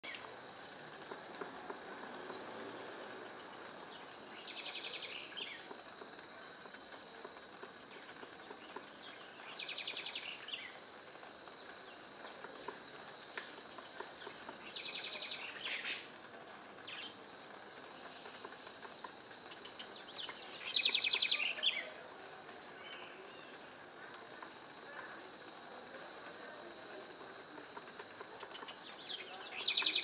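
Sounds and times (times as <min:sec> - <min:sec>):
outdoor hiss: 0:00.0 - 0:30.0.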